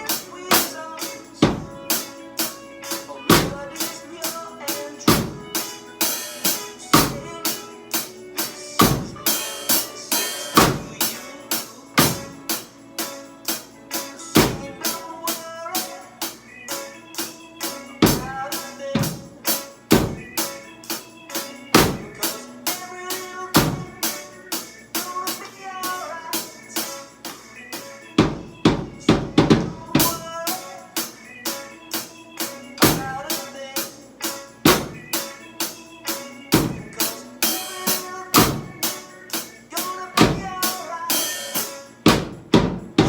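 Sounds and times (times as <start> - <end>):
hi-hat strikes: 0.0 - 43.0
reggae song with vocals: 0.0 - 43.0
muffled kick drum: 21.8 - 22.2, 28.2 - 30.2, 42.1 - 43.0.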